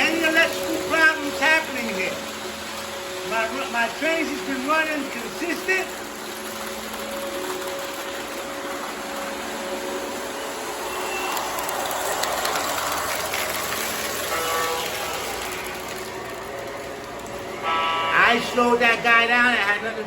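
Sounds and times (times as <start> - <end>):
model trains rolling rumble: 8.5 - 20.0
electronic diesel horn: 13.9 - 16.5, 17.5 - 18.9.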